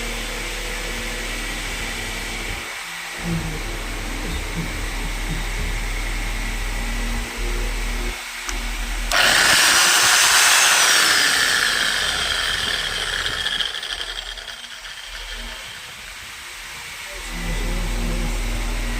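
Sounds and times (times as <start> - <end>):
electric motor whine: 6.2 - 18.9.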